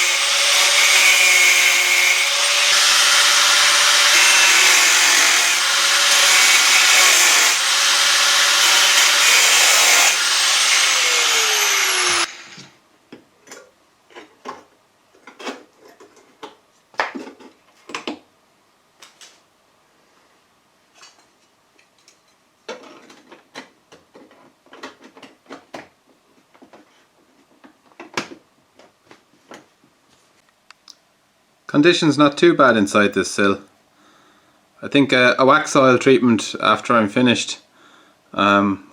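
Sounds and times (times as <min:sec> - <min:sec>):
angle grinder cutting steel: 0:00.0 - 0:12.7.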